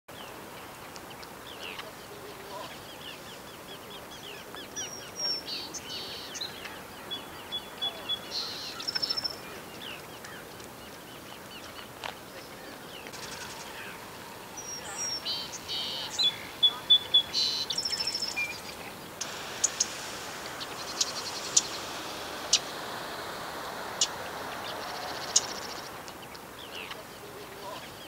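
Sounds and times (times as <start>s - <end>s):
outdoor background noise: 0.1s - 28.0s
wild birds chirping and whistling: 1.0s - 28.0s
bird rattle call: 19.2s - 26.2s.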